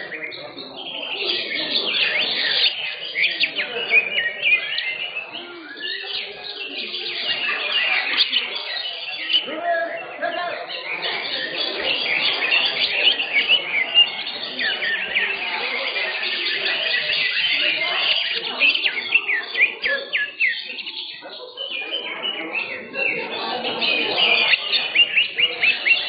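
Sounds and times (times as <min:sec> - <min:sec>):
caged birds chirping and whistling: 0:00.0 - 0:26.0
crowd voices: 0:00.0 - 0:26.0.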